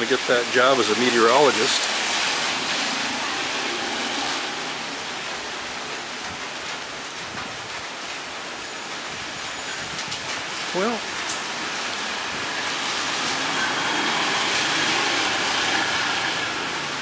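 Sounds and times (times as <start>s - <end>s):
rain hissing: 0.0s - 17.0s.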